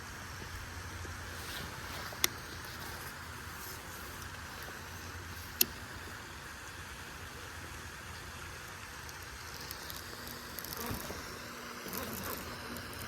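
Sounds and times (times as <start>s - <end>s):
rain falling on water: 3.2s - 11.1s.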